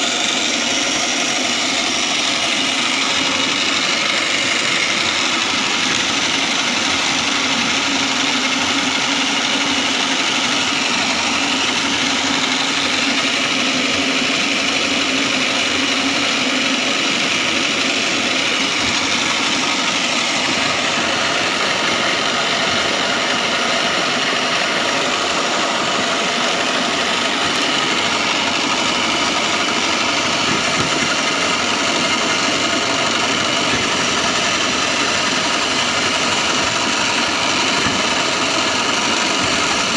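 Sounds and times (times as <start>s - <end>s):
foam shredding machine drone: 0.0s - 39.9s.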